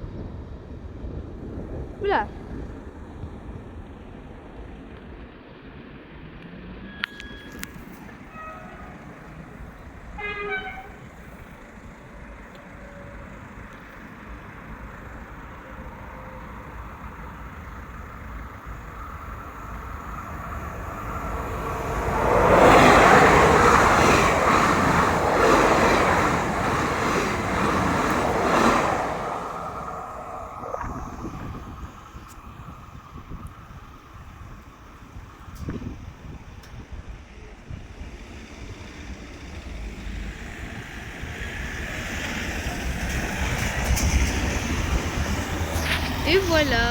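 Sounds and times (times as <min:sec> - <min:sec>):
train passing: 0:00.0 - 0:46.9
train horn toot: 0:06.9 - 0:09.4, 0:10.1 - 0:11.2.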